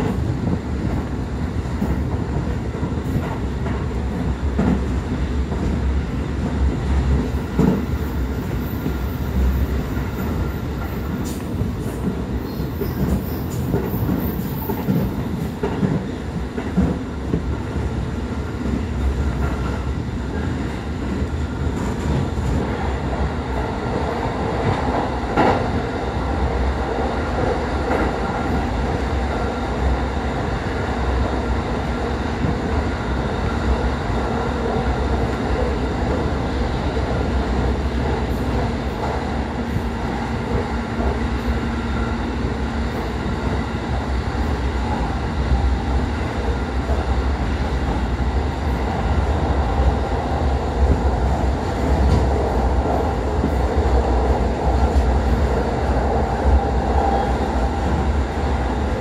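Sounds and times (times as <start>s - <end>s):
train rumbling from inside: 0.0s - 59.0s.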